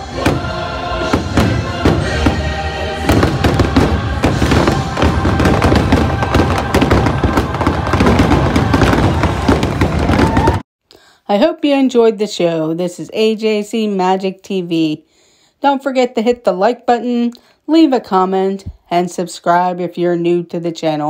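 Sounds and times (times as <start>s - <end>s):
fireworks shells bursting: 0.0s - 10.6s
music: 0.0s - 10.6s.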